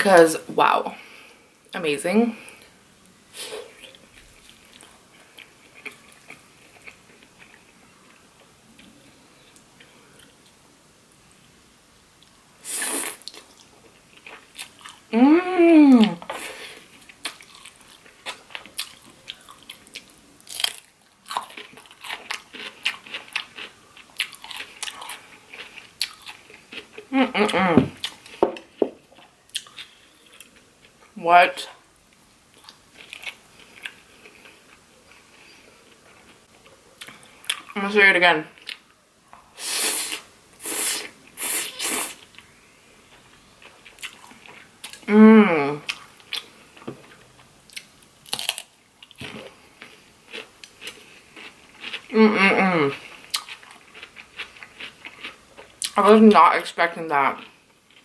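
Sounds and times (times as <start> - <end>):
wet mouth chewing: 17.0 - 28.4, 29.2 - 30.6, 52.9 - 56.0
rushes of air from mouth: 39.6 - 42.2.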